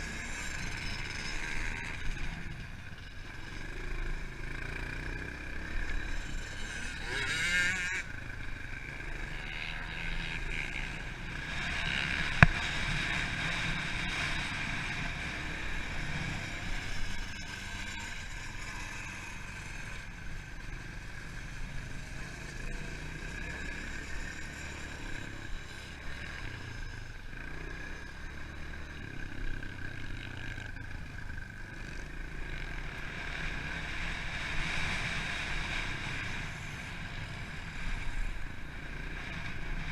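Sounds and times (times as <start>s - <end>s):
pit bike engine running: 0.0s - 39.9s.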